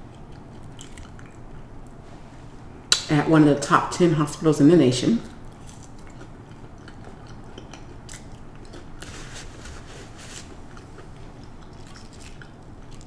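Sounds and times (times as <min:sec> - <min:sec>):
chewing crispy fries: 0:00.0 - 0:01.8, 0:05.4 - 0:13.0.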